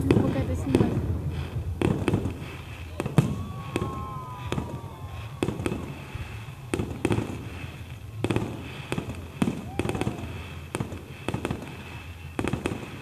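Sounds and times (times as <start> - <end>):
faint firework whistles: 0.0 - 13.0
firework shells bursting: 0.0 - 13.0.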